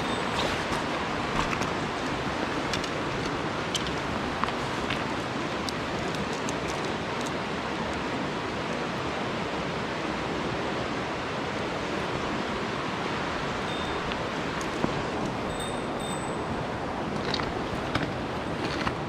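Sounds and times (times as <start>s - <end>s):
stream water rushing over rocks: 0.0s - 19.0s.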